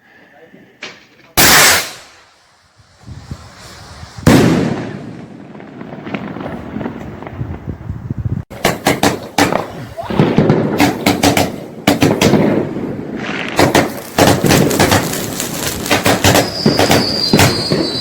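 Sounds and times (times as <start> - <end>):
crackling rumble: 2.3 - 8.5, 11.6 - 17.8
fireworks bangs: 3.0 - 18.0.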